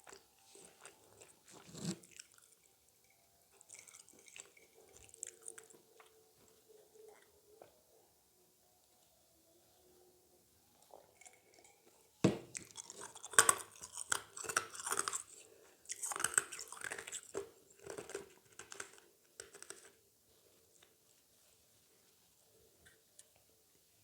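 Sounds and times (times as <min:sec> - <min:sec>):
crunchy chewing: 0:00.0 - 0:07.7, 0:10.8 - 0:20.0.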